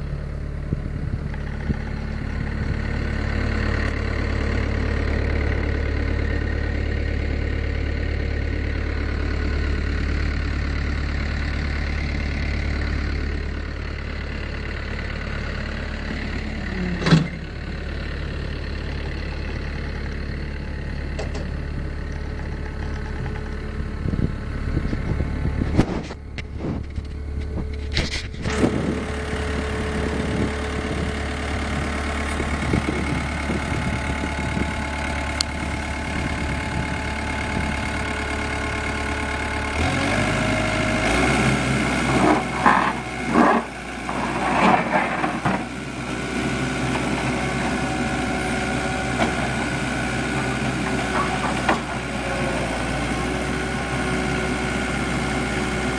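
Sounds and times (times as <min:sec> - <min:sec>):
diesel engine whining: 0:00.0 - 0:55.9
metal clanks and knocks: 0:21.1 - 0:21.6.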